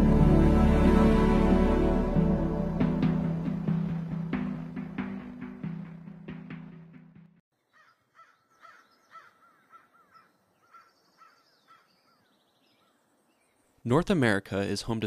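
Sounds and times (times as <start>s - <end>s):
music: 0.0s - 7.4s
faint bird calls: 7.6s - 13.8s.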